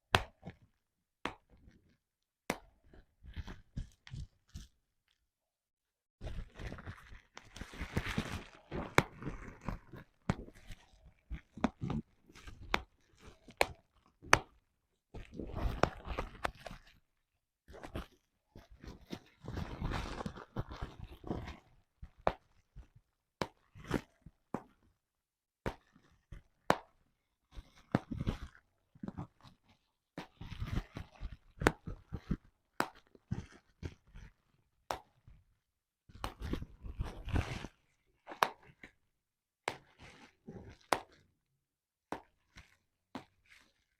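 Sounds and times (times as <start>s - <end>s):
bubble wrap popping: 6.3s - 14.6s.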